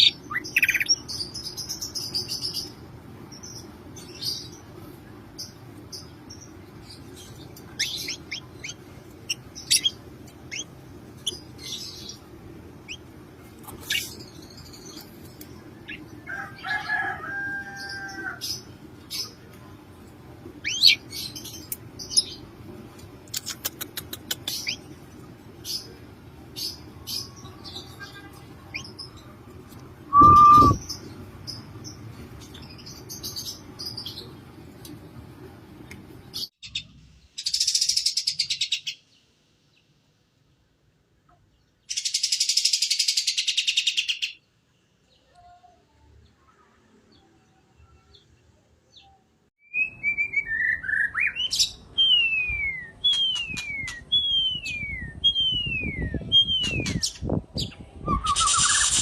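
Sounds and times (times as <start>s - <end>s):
songbird chirps: 0.0s - 59.0s
buzzy bird trilling: 30.1s - 30.8s
falling whistled bird notes: 30.1s - 30.8s
loud bird whistle: 30.1s - 30.8s.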